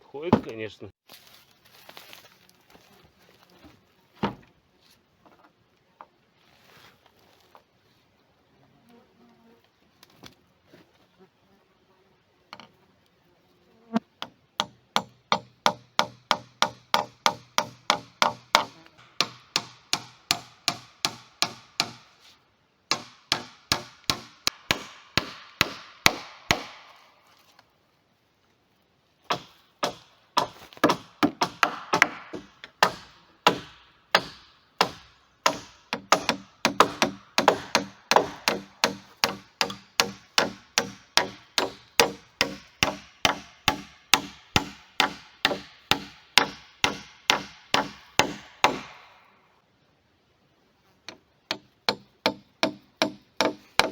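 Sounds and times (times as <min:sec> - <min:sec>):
hammer striking wood: 0:14.2 - 0:22.1, 0:22.9 - 0:27.0, 0:29.3 - 0:49.2, 0:51.5 - 0:53.9.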